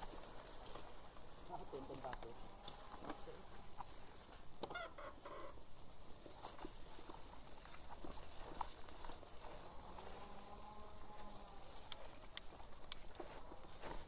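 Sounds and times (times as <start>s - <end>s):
faint clicks and knocks: 11.8s - 14.0s.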